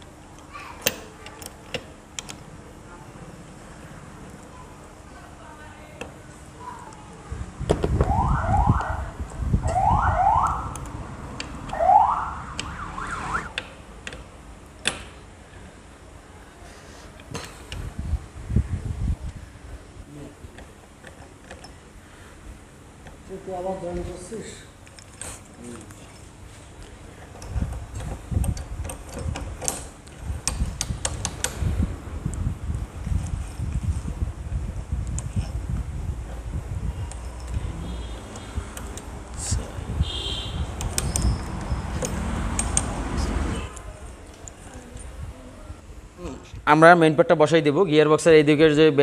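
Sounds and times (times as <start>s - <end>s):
low rumble: 7.9s - 13.6s
electronic siren whooping: 8.0s - 10.8s, 11.7s - 13.6s
metal parts clicking and clinking: 20.6s - 21.8s, 27.2s - 31.6s, 37.0s - 39.1s, 40.8s - 42.9s.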